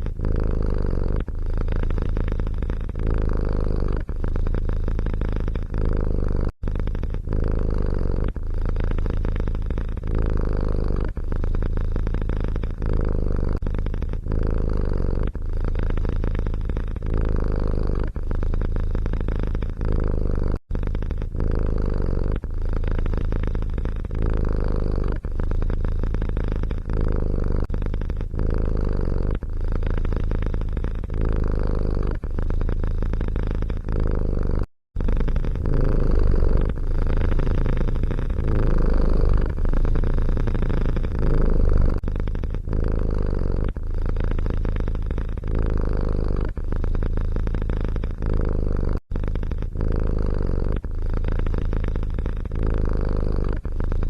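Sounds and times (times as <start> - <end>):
cat purring loudly: 0.0 - 54.0.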